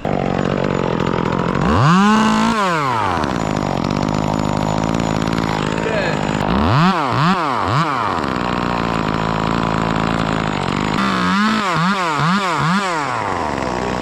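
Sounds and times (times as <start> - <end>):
chainsaw idling and revving: 0.0 - 14.0.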